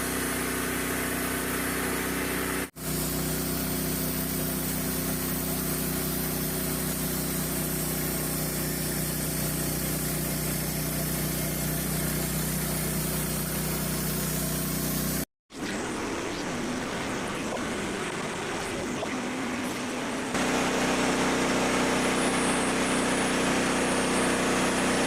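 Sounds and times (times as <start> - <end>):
small gasoline engine running: 0.0 - 15.3, 20.3 - 25.0.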